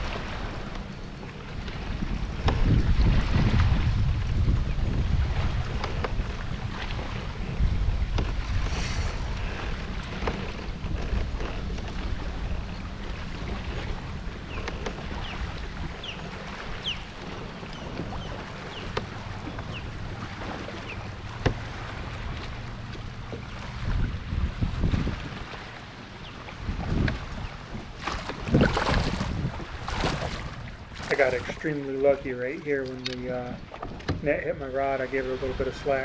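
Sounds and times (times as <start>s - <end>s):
wind buffeting microphone: 0.0s - 36.0s
gear clicking and knocking: 14.5s - 19.9s.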